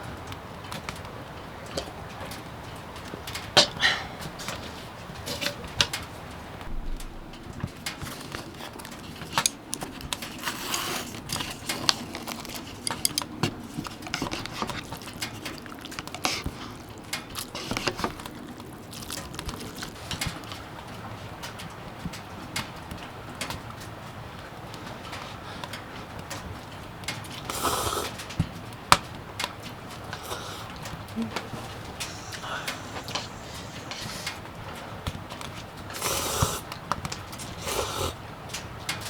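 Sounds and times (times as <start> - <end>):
light clicks and taps: 11.1 - 24.0
faint rustling: 29.6 - 35.7.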